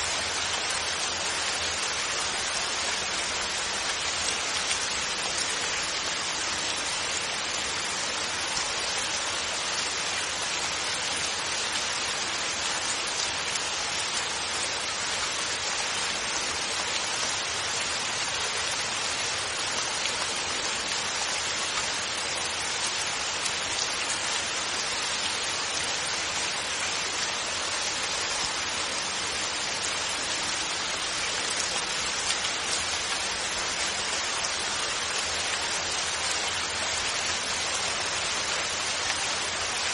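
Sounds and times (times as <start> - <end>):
rain drops pattering: 0.0 - 39.9
steady rain hiss: 0.0 - 39.9.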